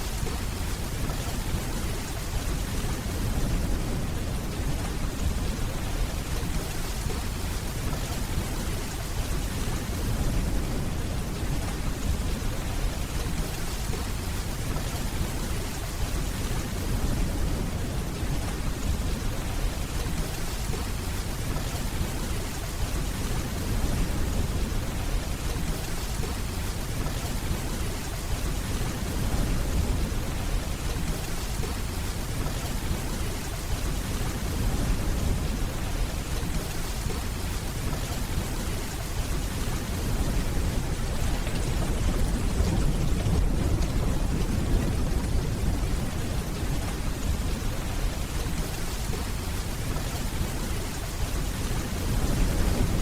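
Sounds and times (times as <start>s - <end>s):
steady rainfall: 0.0s - 53.0s
distant thunder rumbling: 38.0s - 53.0s.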